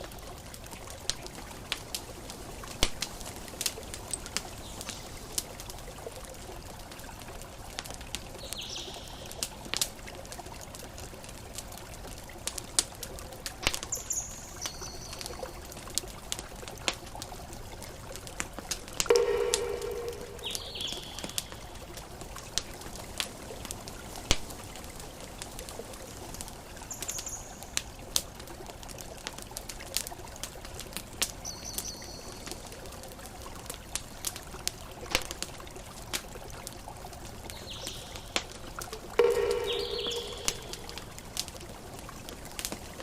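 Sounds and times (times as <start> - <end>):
campfire crackling and popping: 0.0 - 43.0
high bird chirps: 19.1 - 21.7, 39.2 - 41.1
pitched bird call: 19.1 - 21.7, 39.2 - 41.1
ocean waves: 19.1 - 21.8.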